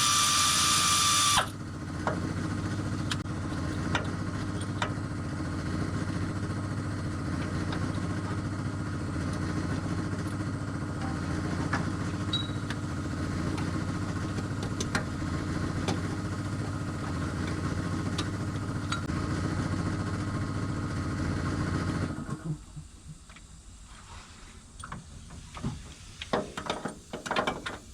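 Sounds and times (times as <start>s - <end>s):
car engine idling: 10.6s - 19.1s.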